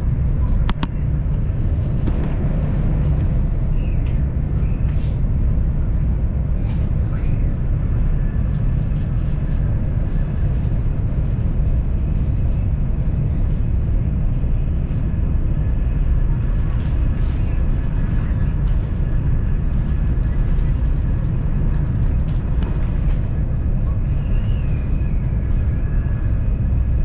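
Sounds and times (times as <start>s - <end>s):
train cabin low rumble: 0.0s - 27.0s.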